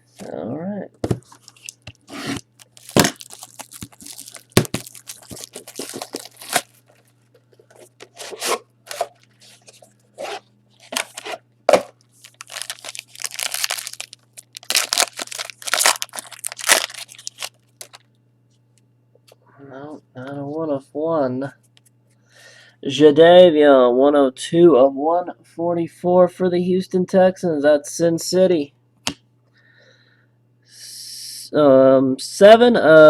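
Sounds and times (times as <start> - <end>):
packs tearing and crinkling: 1.3 - 7.1, 7.8 - 11.4, 12.2 - 18.1.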